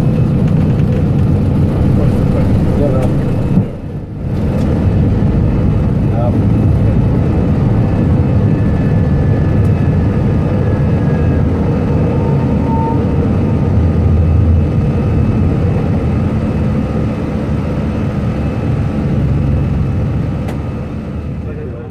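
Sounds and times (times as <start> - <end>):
engine and air rumble: 0.0 - 21.9
faint whining tones: 8.3 - 16.3.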